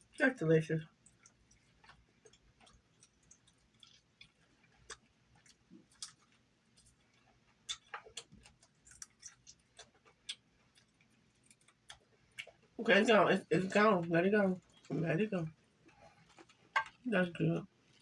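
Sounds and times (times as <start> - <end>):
chewing close to microphone: 1.0 - 12.8, 15.8 - 17.0.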